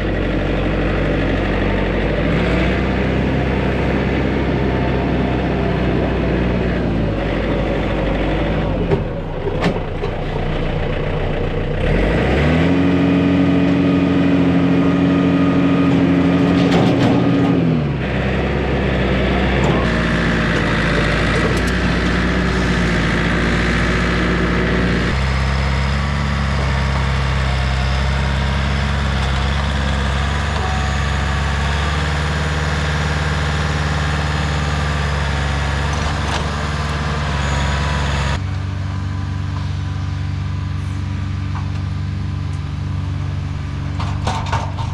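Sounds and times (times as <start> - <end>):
heavy vehicle engine revving: 0.0 - 44.9.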